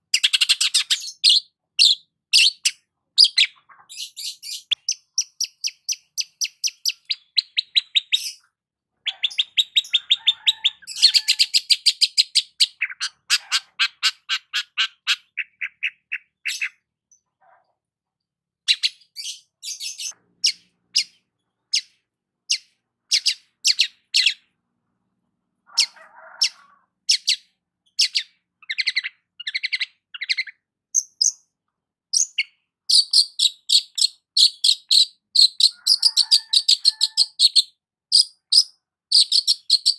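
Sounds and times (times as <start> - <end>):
bird chirping: 0.0 - 17.7, 18.7 - 24.6, 25.7 - 39.9.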